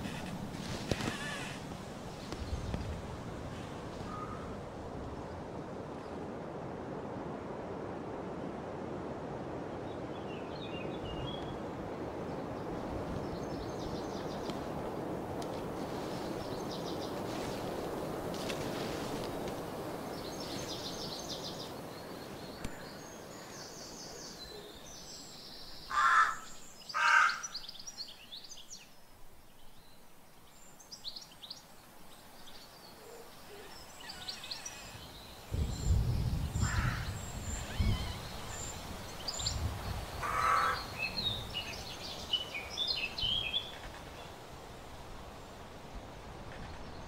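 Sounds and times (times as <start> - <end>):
small birds chirping: 19.6 - 44.4
harsh bird calls: 25.6 - 27.8, 33.0 - 44.4.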